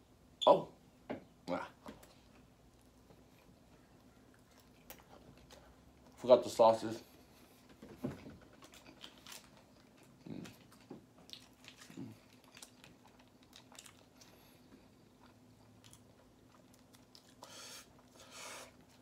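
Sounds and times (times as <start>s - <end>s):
faint steady hum: 0.0s - 19.0s
chewing and mouth clicks: 2.0s - 6.2s, 8.5s - 18.2s.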